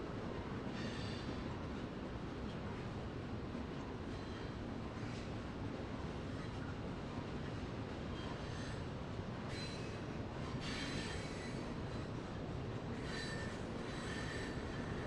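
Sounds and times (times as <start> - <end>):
train rumbling on rails: 0.0 - 15.0
train wheels squealing: 0.7 - 1.5, 4.1 - 5.3, 6.3 - 6.7, 8.0 - 15.0.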